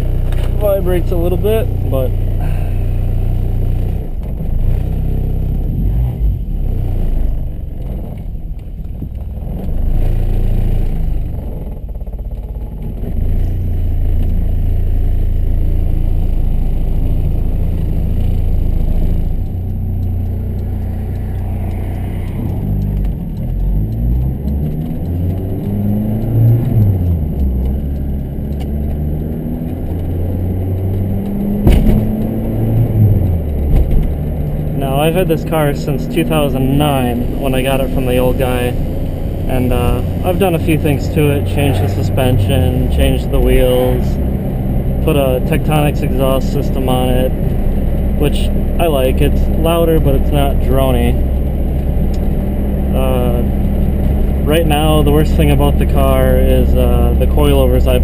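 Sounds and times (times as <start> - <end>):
car engine accelerating: 0.0 - 58.0
sharp knock: 31.6 - 32.2.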